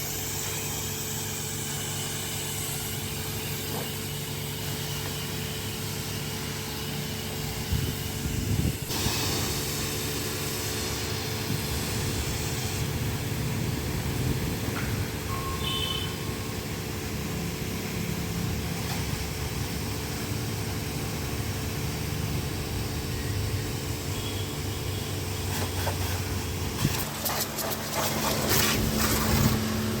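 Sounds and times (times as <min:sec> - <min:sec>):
pressure washer motor hum: 0:00.0 - 0:30.0
short hissing crackling bursts: 0:08.9 - 0:12.9.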